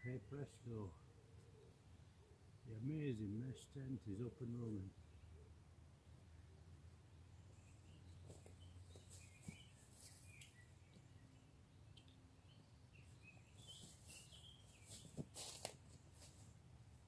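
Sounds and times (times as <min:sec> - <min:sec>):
faint bird chirps: 0:07.4 - 0:15.2.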